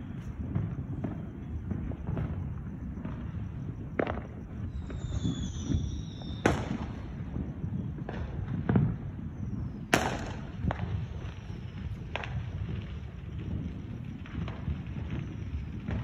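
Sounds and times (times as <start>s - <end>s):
sharp firework bangs: 0.0s - 16.0s
firework whistle falling in pitch: 4.1s - 10.9s.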